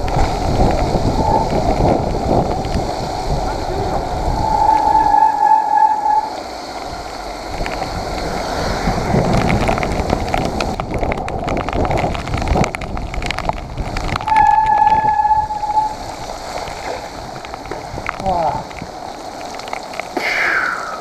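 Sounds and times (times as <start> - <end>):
tyre and wind noise: 0.0 - 21.0
bike rattling and knocking: 7.5 - 15.1.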